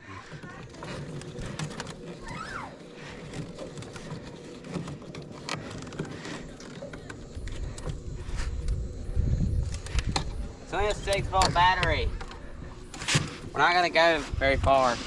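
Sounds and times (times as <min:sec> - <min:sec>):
electric motor hum: 0:00.0 - 0:15.0
low rumble: 0:07.2 - 0:15.0.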